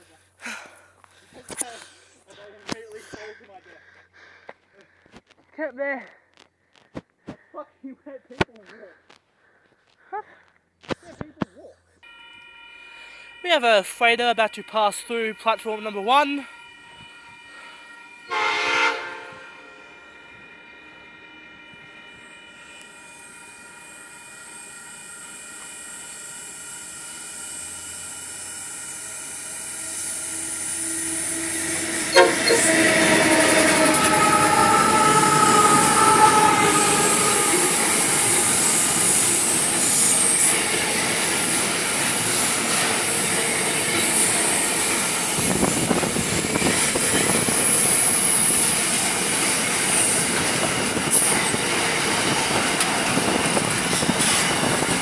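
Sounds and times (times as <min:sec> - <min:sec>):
freight train passing: 0:12.0 - 0:55.0
high-pitched wheel squeal: 0:25.6 - 0:40.6.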